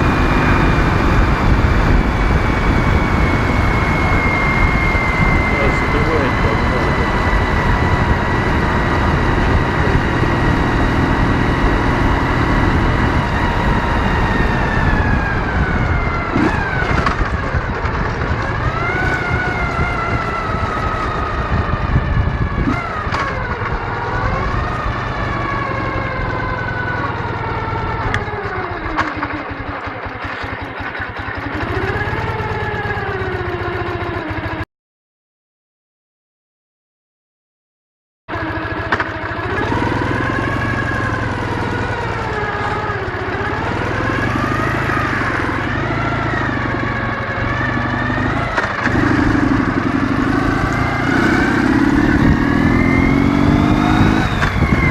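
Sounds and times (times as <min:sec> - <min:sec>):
low wind rumble: 0:00.0 - 0:28.9, 0:39.6 - 0:54.9
motorcycle engine running: 0:00.0 - 0:34.7, 0:38.3 - 0:54.9.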